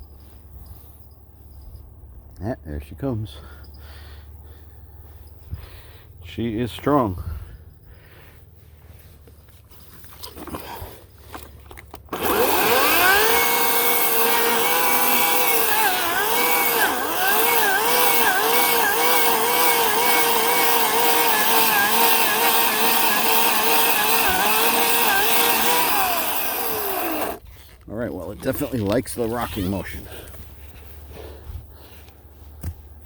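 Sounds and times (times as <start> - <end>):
electric chainsaw cutting wood: 12.1 - 27.4.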